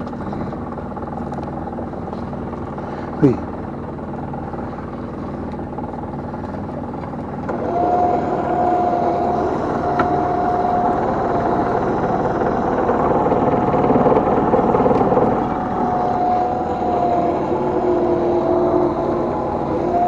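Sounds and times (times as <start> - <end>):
boat engine and hauling gear: 0.0 - 20.0
steady whine: 0.0 - 20.0.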